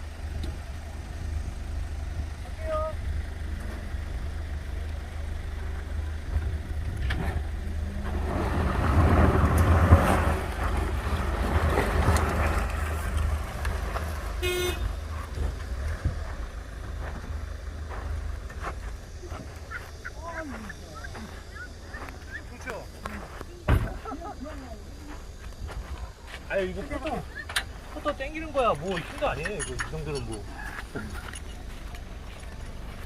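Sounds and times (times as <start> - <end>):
spinning tyres: 0.0 - 33.0
vehicle engine under load: 0.0 - 33.0
horn toot: 14.4 - 14.9.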